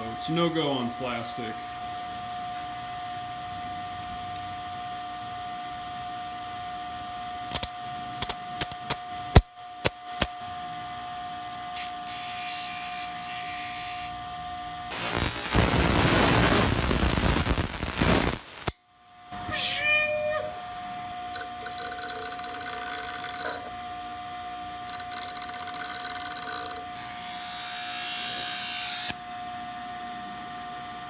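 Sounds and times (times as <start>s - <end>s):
sharp clicks and knocks: 7.5s - 10.4s
bench grinder humming: 11.8s - 14.2s, 14.9s - 18.8s, 21.4s - 23.8s, 24.9s - 29.2s.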